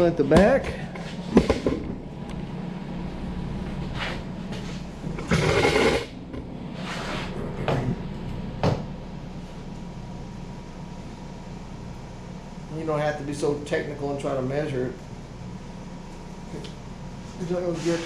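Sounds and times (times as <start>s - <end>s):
steady background hum: 0.0s - 18.0s
scraping rustle: 17.3s - 18.0s.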